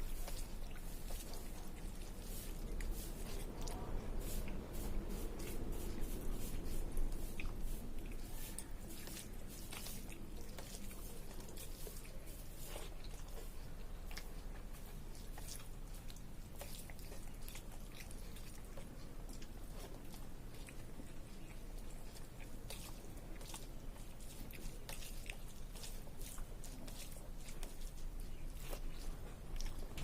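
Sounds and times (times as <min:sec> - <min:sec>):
person chewing food: 0:00.0 - 0:30.0
steady low hum: 0:00.0 - 0:30.0.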